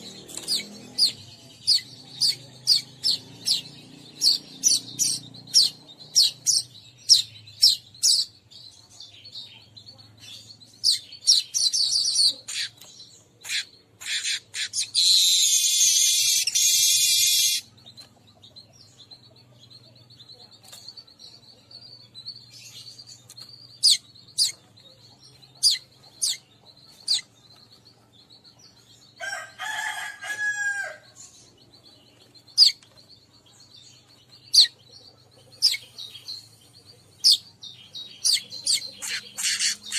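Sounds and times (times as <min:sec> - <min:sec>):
weaverbird chirps: 0:00.0 - 0:08.4, 0:10.4 - 0:19.3, 0:21.6 - 0:39.9
harsh buzzy bird trill: 0:13.4 - 0:17.7, 0:37.2 - 0:39.9.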